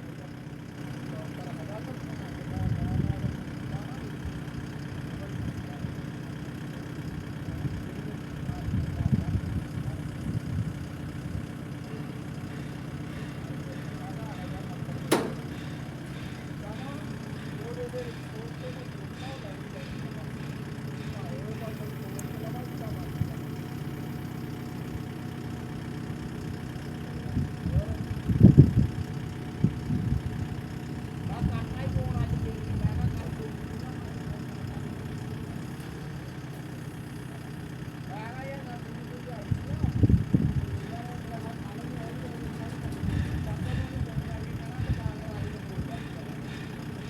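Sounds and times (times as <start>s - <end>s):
engine idling: 0.0s - 47.0s
low engine surges: 0.0s - 47.0s.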